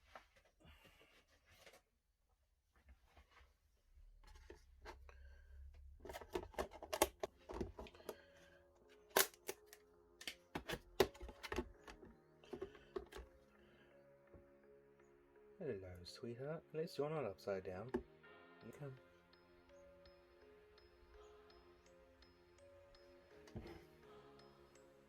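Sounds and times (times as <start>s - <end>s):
background music: 4.0s - 25.0s
clicks and rustles of handling: 5.8s - 8.2s, 8.8s - 13.3s.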